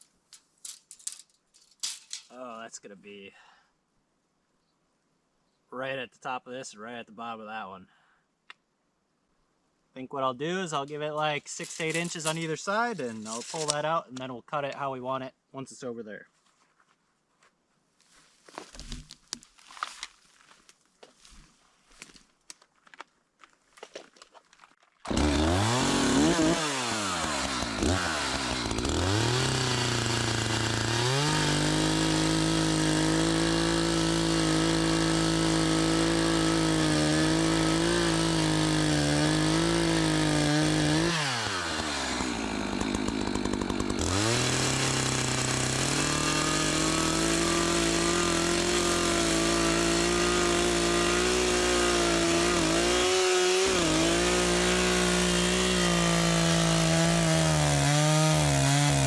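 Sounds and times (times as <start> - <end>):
chainsaw cutting tree trunk: 11.6 - 12.5, 25.1 - 59.0.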